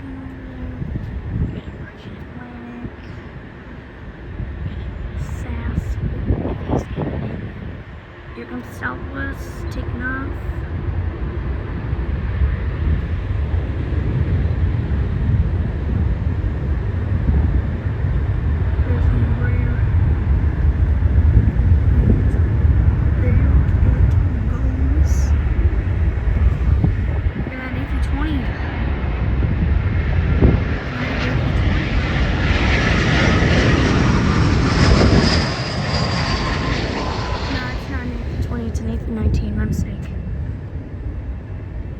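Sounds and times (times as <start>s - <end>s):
jet engines low rumble: 0.0s - 41.9s.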